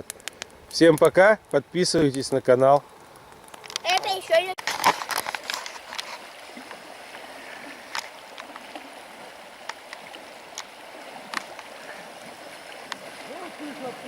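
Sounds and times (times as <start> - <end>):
river water rushing: 5.5 - 14.0.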